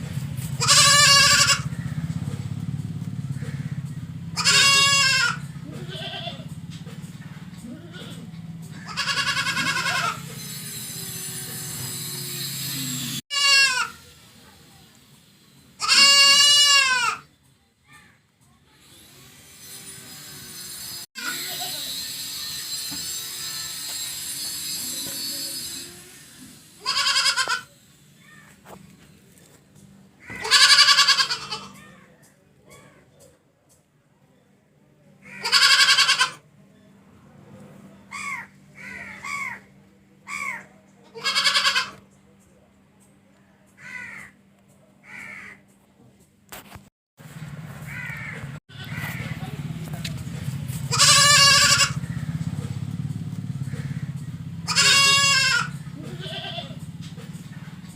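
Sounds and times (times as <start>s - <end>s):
goat bleating: 0.5s - 1.8s, 4.4s - 6.5s, 7.6s - 10.4s, 13.0s - 14.0s, 15.8s - 17.3s, 21.2s - 22.0s, 26.8s - 27.7s, 30.2s - 31.8s, 35.3s - 36.4s, 41.0s - 42.0s, 48.0s - 49.4s, 50.9s - 52.0s, 54.6s - 56.8s.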